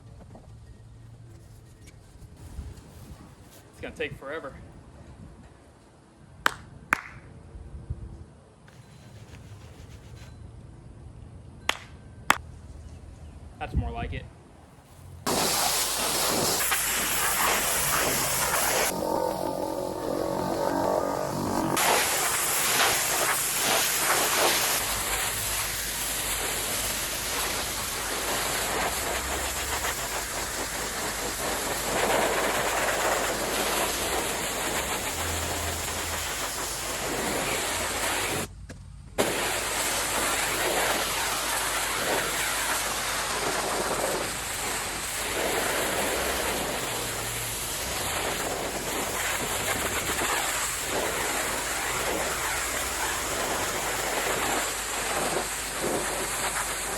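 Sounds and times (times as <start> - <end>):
pressure washer spraying water: 15.3 - 38.5, 39.2 - 56.9.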